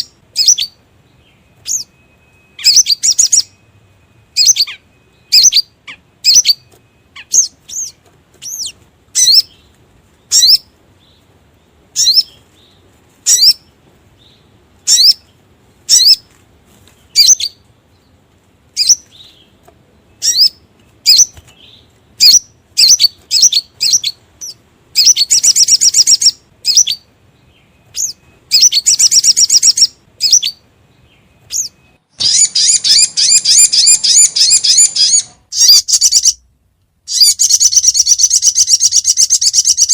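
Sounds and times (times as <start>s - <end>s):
bird lure chirps and trills: 37.1s - 39.9s.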